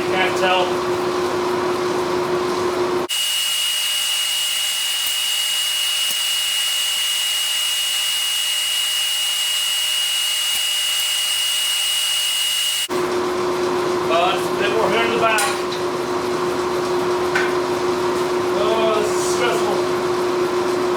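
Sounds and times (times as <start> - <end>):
forge hissing and whistling: 3.1 - 12.9.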